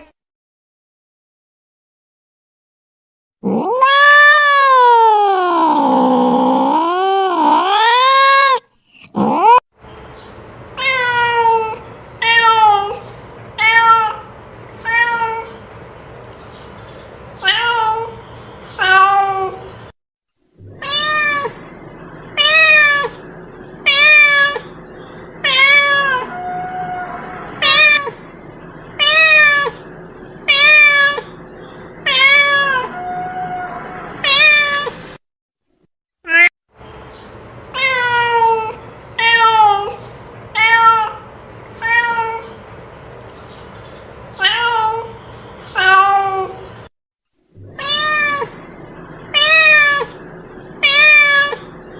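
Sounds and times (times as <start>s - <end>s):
cat meowing: 3.4s - 8.6s, 10.8s - 15.6s, 17.4s - 18.2s, 18.8s - 19.7s, 20.6s - 21.6s, 22.4s - 23.2s, 23.8s - 24.8s, 25.4s - 28.2s, 29.0s - 29.9s, 30.5s - 31.4s, 32.0s - 35.0s, 37.8s - 40.0s, 40.6s - 42.6s, 44.4s - 46.6s, 47.6s - 48.6s, 49.3s - 50.2s, 50.8s - 51.8s.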